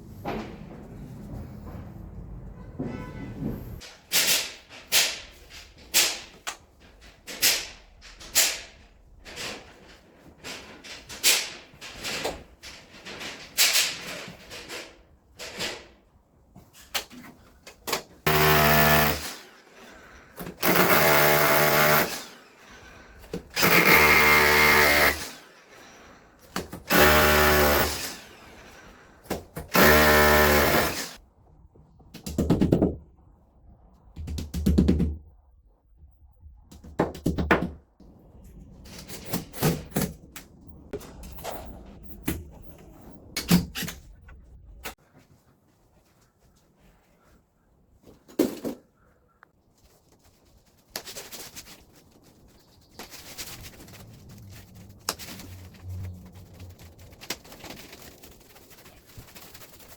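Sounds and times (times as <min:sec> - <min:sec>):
power drill running: 0:18.3 - 0:19.6, 0:20.6 - 0:22.6, 0:23.6 - 0:25.5, 0:26.9 - 0:28.5, 0:29.7 - 0:31.2.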